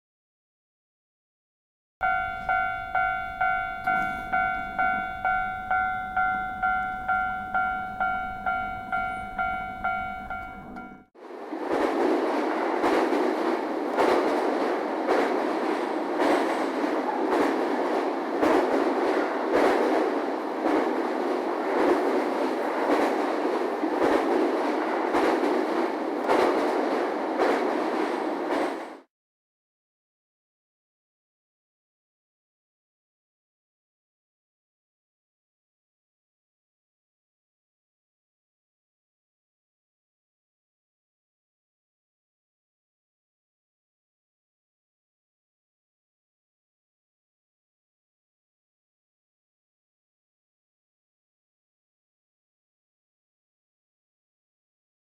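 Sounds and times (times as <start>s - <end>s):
level crossing alarm clanging: 2.0s - 11.1s
train wheels clacking over rail joints: 11.6s - 29.1s.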